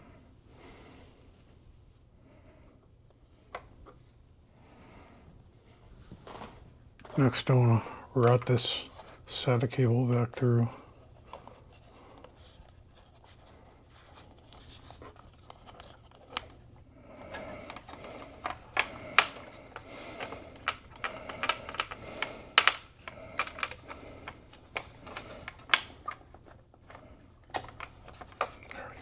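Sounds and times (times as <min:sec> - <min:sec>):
cable rustling against plastic: 0:06.1 - 0:29.0
light clicks and taps: 0:17.6 - 0:26.3.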